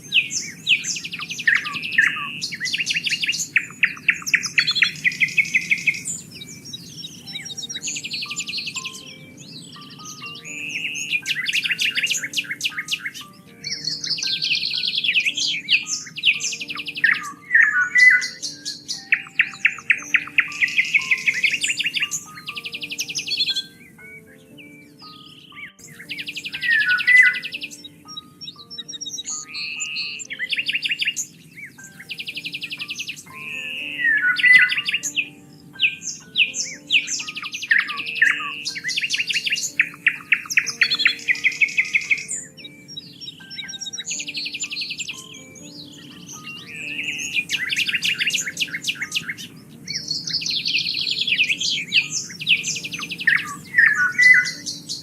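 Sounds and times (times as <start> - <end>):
soft background music: 0.0 - 55.0
songbirds singing: 0.0 - 55.0.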